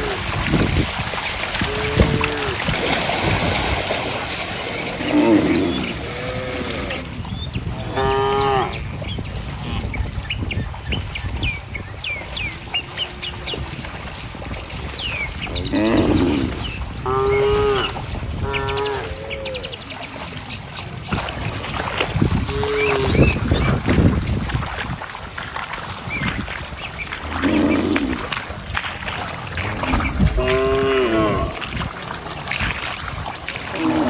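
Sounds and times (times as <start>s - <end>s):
cattle mooing: 1.6s - 3.1s, 4.4s - 7.1s, 15.7s - 19.7s, 27.2s - 28.3s, 29.5s - 31.7s, 33.7s - 34.0s
birds chirping: 1.7s - 24.6s, 26.0s - 28.3s, 29.4s - 34.0s.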